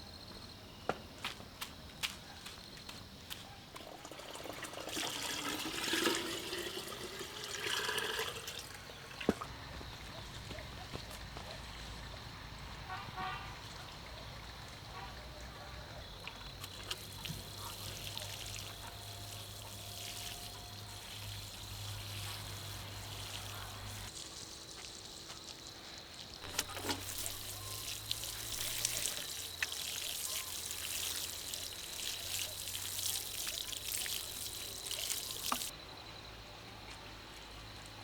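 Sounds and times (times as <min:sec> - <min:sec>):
water pouring and trickling: 0:03.7 - 0:10.0, 0:16.2 - 0:35.7.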